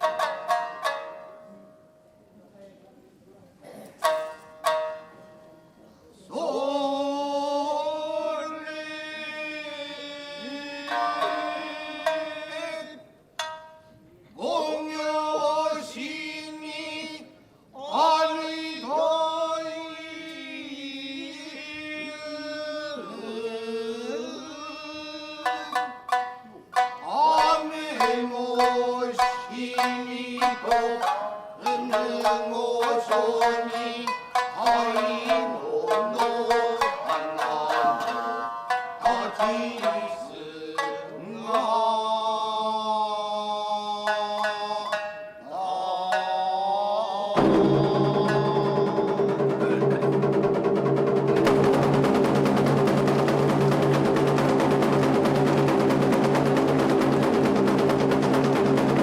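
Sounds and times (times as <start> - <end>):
plucked shamisen: 0.0 - 2.2, 4.0 - 5.8, 10.2 - 14.2, 25.1 - 42.1, 43.9 - 46.7, 47.4 - 59.0
person chanting long notes: 10.4 - 12.8.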